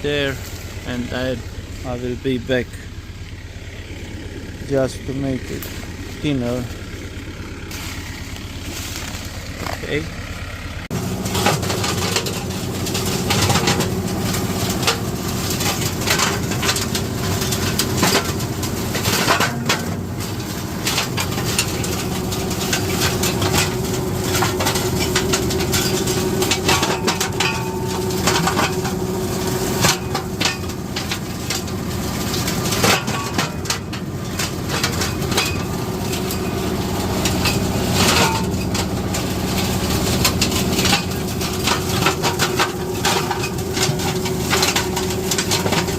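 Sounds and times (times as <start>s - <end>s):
flail mower running: 0.0s - 45.9s
branches cracking and snapping: 5.3s - 19.0s.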